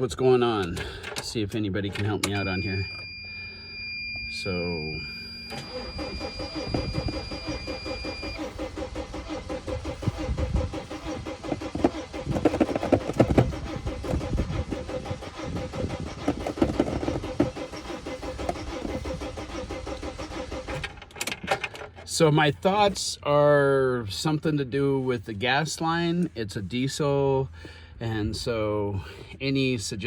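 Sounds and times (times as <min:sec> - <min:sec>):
diesel engine cranking: 0:00.0 - 0:03.0, 0:04.4 - 0:23.4.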